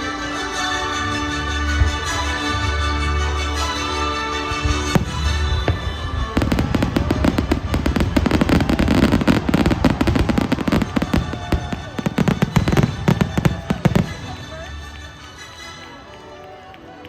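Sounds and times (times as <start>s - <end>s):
fireworks crackling and banging: 4.2s - 15.6s.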